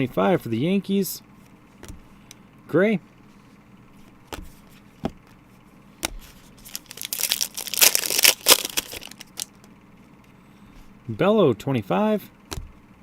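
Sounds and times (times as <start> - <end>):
packaging crinkling and rustling: 6.5 - 9.6.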